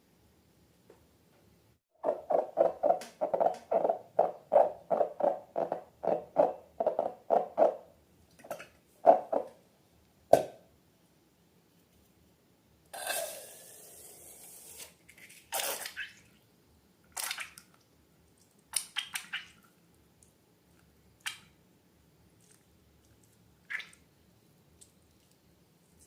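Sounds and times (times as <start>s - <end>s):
wet slime squelches: 17.1s - 19.9s.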